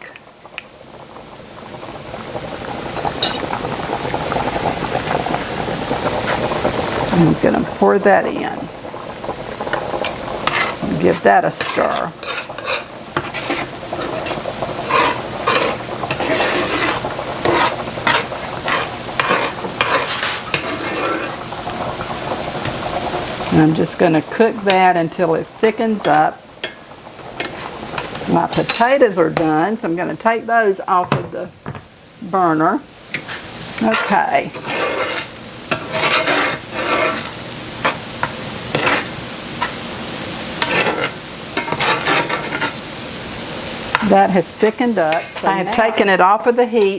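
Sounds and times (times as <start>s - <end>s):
sauce sizzling: 0.0s - 46.9s
utensil scraping a pan: 10.0s - 22.8s, 27.4s - 29.6s, 33.1s - 39.9s, 40.6s - 42.9s, 43.9s - 46.9s.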